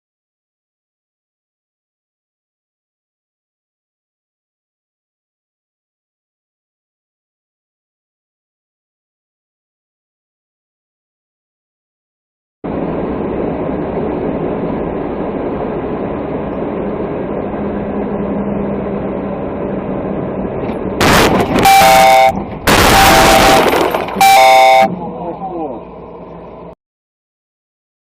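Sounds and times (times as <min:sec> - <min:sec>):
vehicle road and engine noise: 0:12.6 - 0:26.8
loud multi-tone horn blasts: 0:21.0 - 0:25.0.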